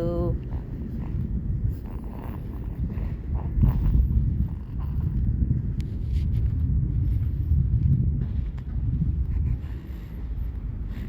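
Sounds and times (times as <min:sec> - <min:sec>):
low rumbling street noise: 0:00.0 - 0:11.0.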